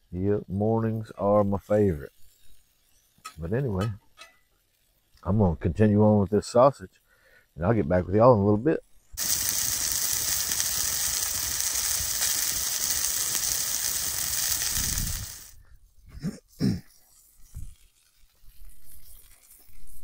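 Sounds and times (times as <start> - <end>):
sausages sizzling in skillet: 0.0 - 5.4, 8.9 - 15.8, 16.5 - 20.0.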